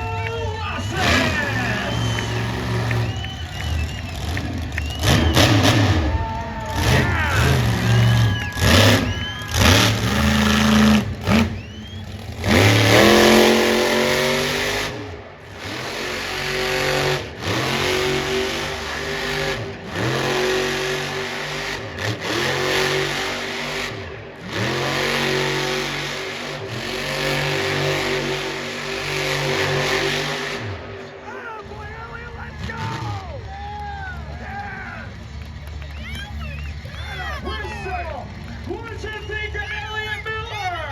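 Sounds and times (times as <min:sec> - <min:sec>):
monster truck engine revving: 0:00.0 - 0:40.9.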